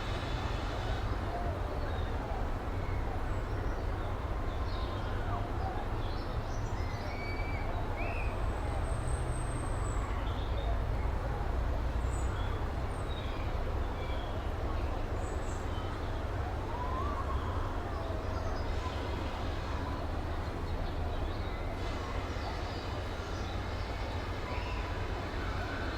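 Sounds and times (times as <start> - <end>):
steam train rumble and hiss: 0.0 - 4.4, 18.4 - 25.9.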